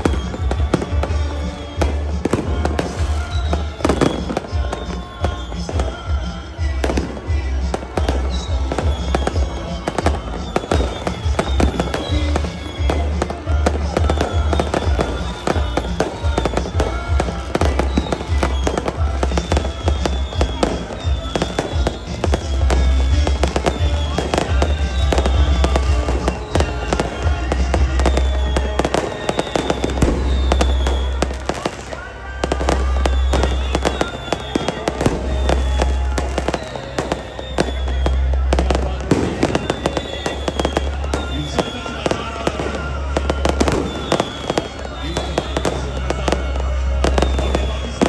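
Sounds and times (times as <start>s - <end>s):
fireworks crackling and banging: 0.0s - 48.0s
music: 0.0s - 48.0s.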